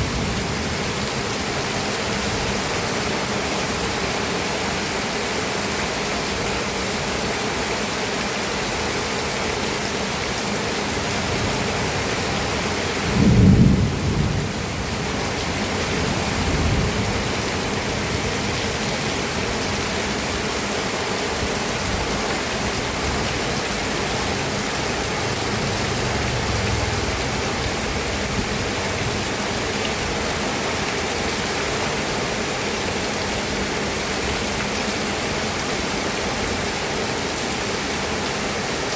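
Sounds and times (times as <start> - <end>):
steady rain falling: 0.0 - 38.9
thunder clap and rumble: 12.6 - 18.5, 24.0 - 29.1.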